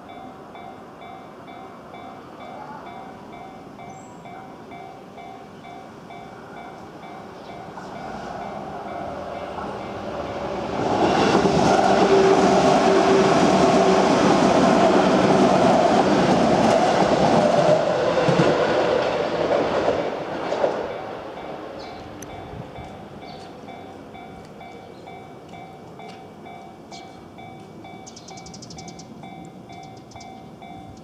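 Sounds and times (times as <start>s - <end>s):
crossing warning bell: 0.0s - 11.4s, 20.8s - 31.0s
train wheels clattering on rails: 6.7s - 31.0s.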